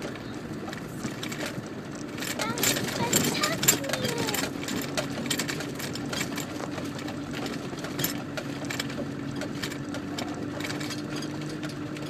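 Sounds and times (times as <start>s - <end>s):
clicks and rattles: 0.0s - 12.0s
vehicle engine running: 0.0s - 12.0s.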